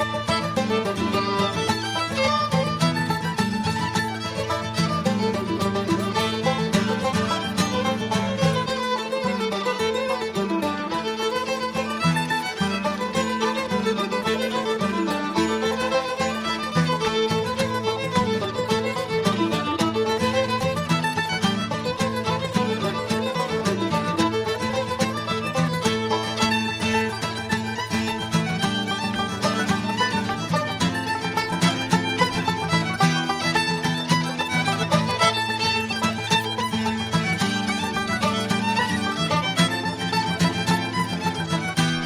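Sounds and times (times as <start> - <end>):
fiddle melody: 0.0 - 42.0
strummed guitar banjo and mandolin: 0.0 - 42.0.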